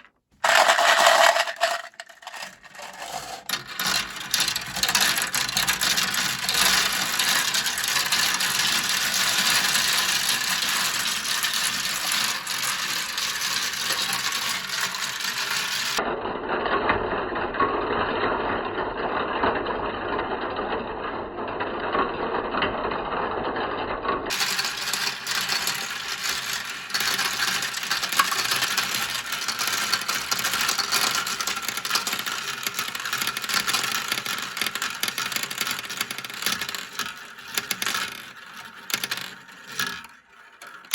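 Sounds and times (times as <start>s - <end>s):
marbles rattling down a track: 0.0s - 16.0s, 24.3s - 40.9s.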